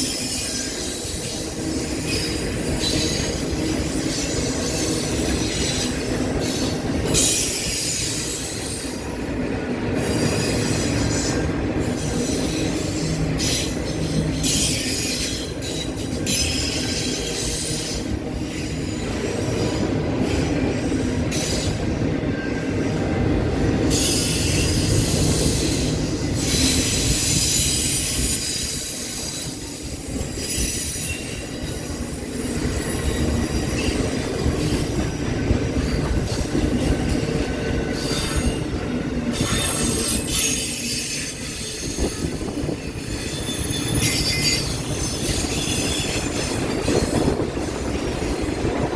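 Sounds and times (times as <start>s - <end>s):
wheels rumbling on rail: 0.0s - 48.9s
wheel flange squeal: 37.6s - 47.3s.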